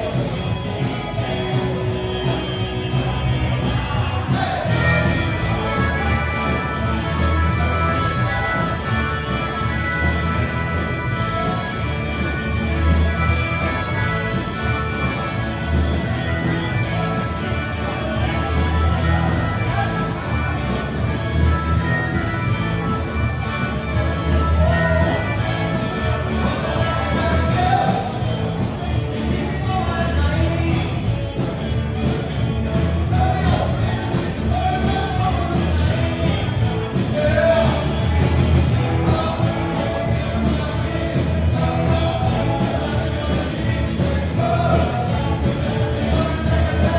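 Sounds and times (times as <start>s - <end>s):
live rock band playing: 0.0s - 46.9s
steady drum beat: 0.0s - 46.9s
person singing: 16.0s - 46.9s.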